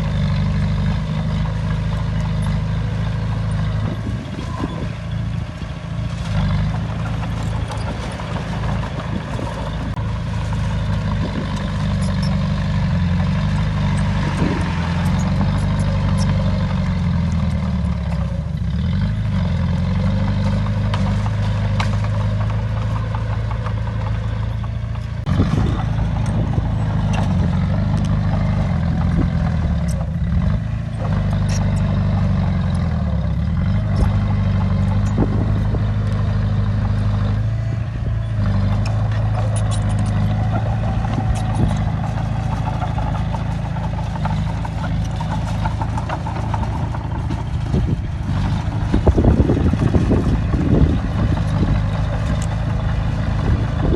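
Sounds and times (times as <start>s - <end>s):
bulldozer diesel engine under load: 0.0s - 53.9s
metallic clanks and clatter: 38.4s - 53.9s.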